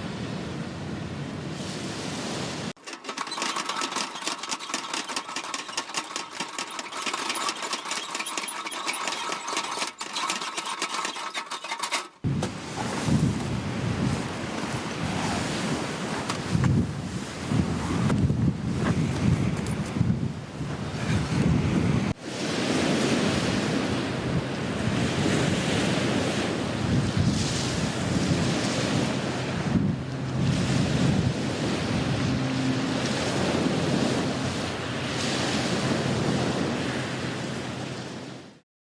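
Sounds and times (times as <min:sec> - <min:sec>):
waves washing on shore: 0:00.0 - 0:10.0, 0:12.2 - 0:19.5, 0:21.2 - 0:38.6
wind rumbling on microphone: 0:12.2 - 0:38.5.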